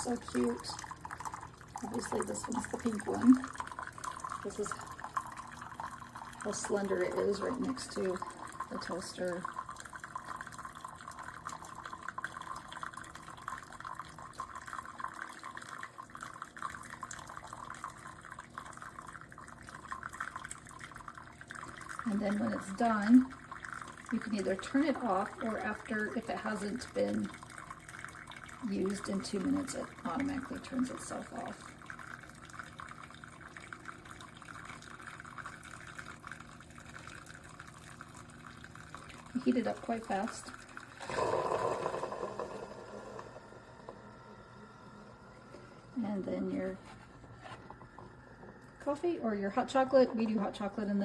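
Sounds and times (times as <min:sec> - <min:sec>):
hot water pouring into mug: 0:00.0 - 0:51.0.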